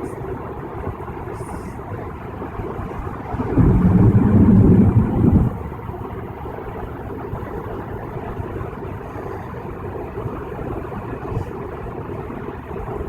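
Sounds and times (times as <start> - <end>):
road and tyre noise: 0.2 - 6.6.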